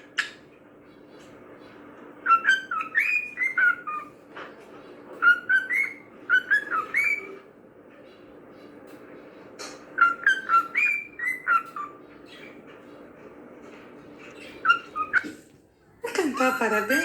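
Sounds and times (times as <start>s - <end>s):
cockatiel whistling: 2.2s - 4.1s, 5.2s - 7.4s, 10.0s - 12.0s, 14.6s - 15.3s.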